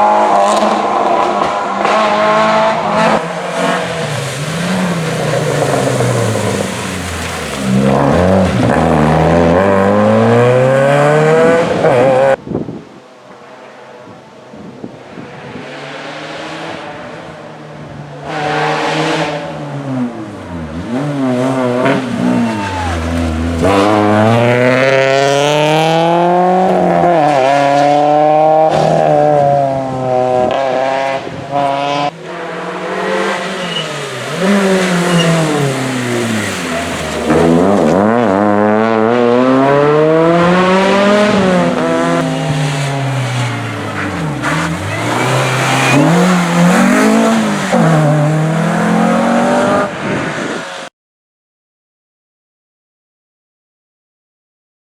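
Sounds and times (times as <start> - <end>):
rally car engine revving: 0.0 - 12.4, 15.3 - 50.9.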